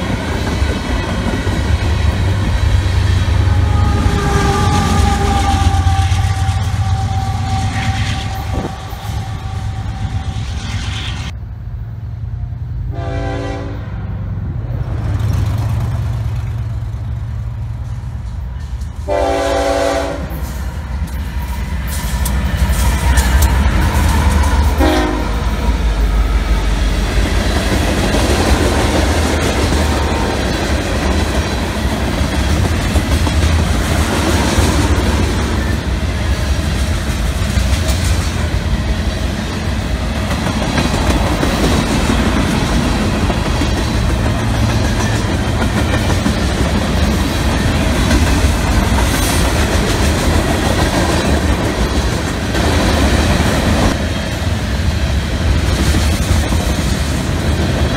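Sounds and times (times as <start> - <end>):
clickety-clack of rail joints: 0.0 - 2.9, 14.9 - 26.2, 26.9 - 54.4, 55.4 - 57.9
freight train wheels rumbling: 0.0 - 57.9.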